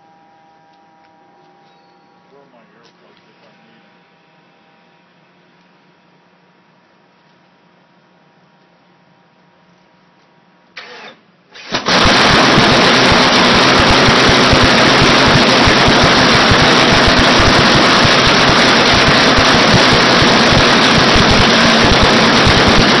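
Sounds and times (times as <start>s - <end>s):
two-stroke aircraft engine running: 11.7s - 23.0s.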